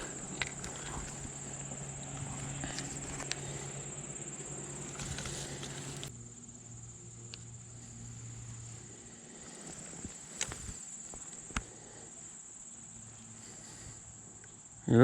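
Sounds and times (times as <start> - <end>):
rustling handling noise: 0.0 - 6.1, 7.8 - 11.7
insects trilling: 0.0 - 15.0.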